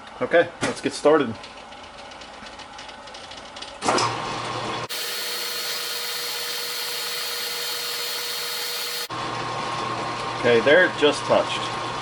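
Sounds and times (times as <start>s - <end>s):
metal lathe whining: 4.9s - 9.1s.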